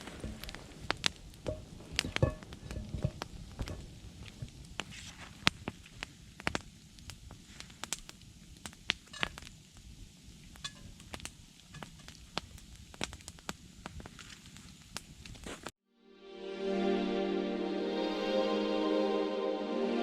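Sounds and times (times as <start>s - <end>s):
campfire crackling: 0.0s - 15.7s
fire pops and snaps: 0.0s - 15.7s.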